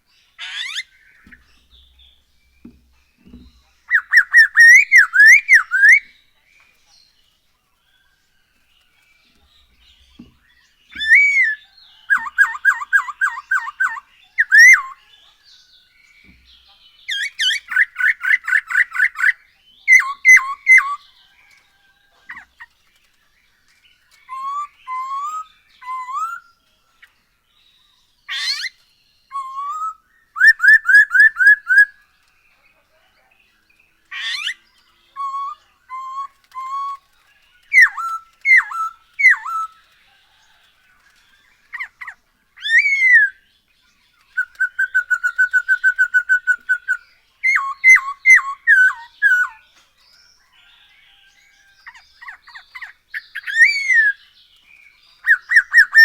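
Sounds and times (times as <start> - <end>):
bird singing whistled phrases: 3.9 - 6.2, 10.9 - 15.0, 17.1 - 21.1, 24.3 - 26.5, 29.3 - 32.0, 34.2 - 37.1, 37.7 - 39.8, 41.8 - 43.4, 44.3 - 49.6, 51.9 - 54.3, 55.2 - 56.0.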